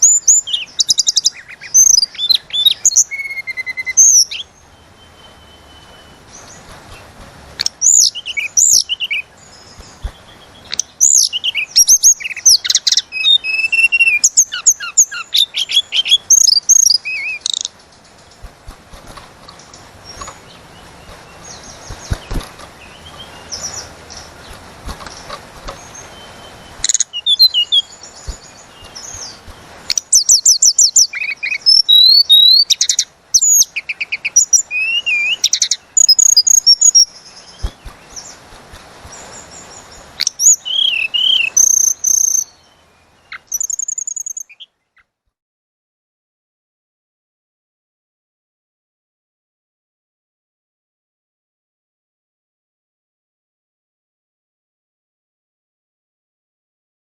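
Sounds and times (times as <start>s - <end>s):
bird chirping and trilling: 0.0s - 45.1s.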